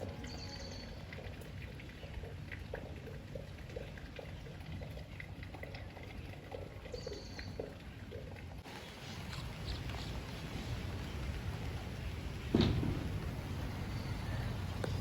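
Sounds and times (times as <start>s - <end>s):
drops pattering and dripping: 0.0s - 15.0s
rain falling: 8.6s - 15.0s.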